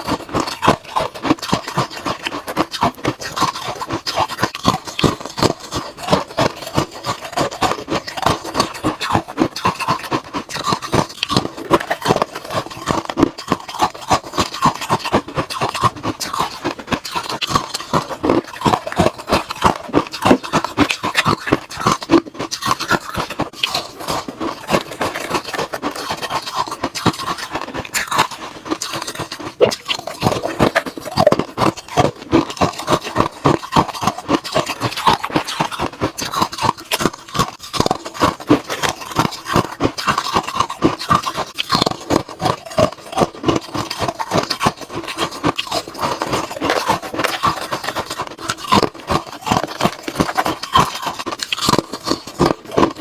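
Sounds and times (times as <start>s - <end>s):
ice cubes crunching: 0.0s - 53.0s.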